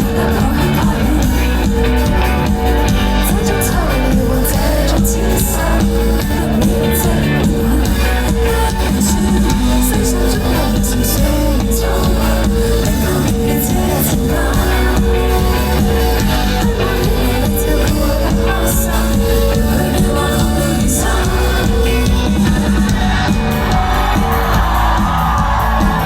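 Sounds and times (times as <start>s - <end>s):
live pop band playing: 0.0s - 26.0s
person singing: 0.0s - 26.0s.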